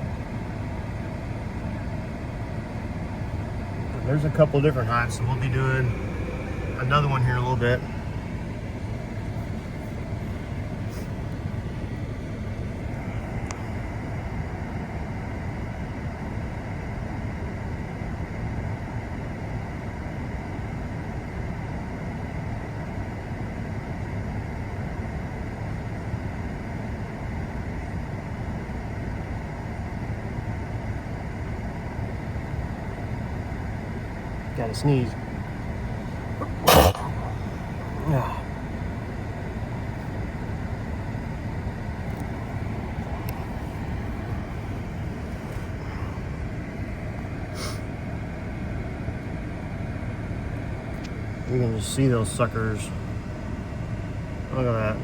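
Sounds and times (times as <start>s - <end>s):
truck engine idling: 0.0s - 17.2s, 29.5s - 55.0s.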